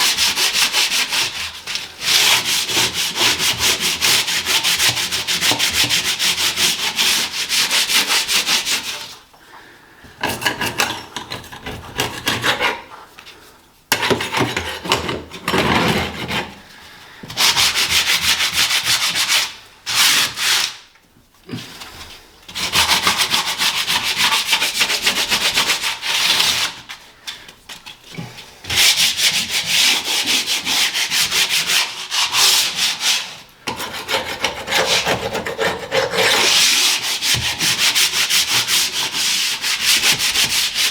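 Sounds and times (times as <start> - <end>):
sandpaper scratching strokes: 34.1 - 40.9.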